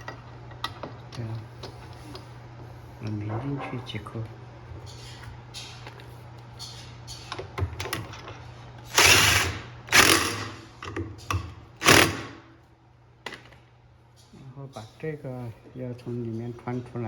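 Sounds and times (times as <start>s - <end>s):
screwdriver tool bursts: 8.9s - 10.6s, 11.8s - 12.4s.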